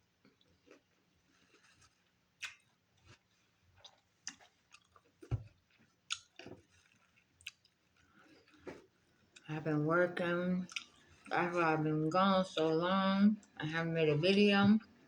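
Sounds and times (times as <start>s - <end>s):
chewing with crunches: 0.0s - 9.5s, 10.6s - 11.4s.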